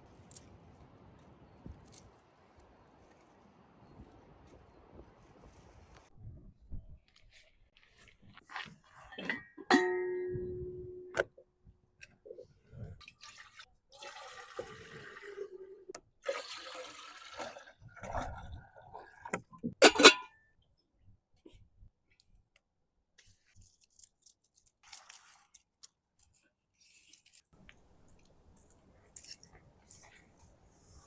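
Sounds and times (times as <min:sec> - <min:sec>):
water pouring and splashing: 0:13.0 - 0:15.6, 0:16.2 - 0:19.4.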